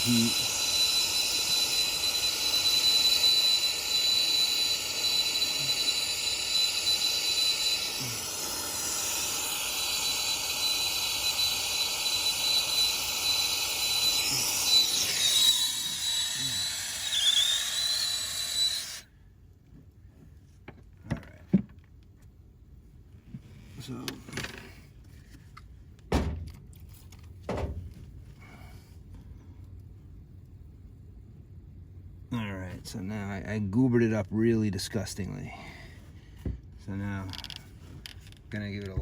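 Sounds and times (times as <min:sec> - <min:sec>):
torch flame hissing with whistle: 0:00.0 - 0:19.1.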